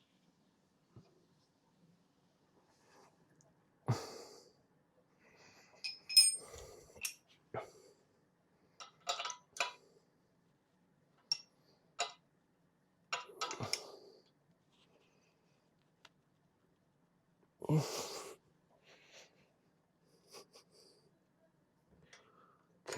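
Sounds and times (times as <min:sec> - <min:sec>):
metal tools clinking: 0:05.8 - 0:07.2, 0:08.9 - 0:09.8.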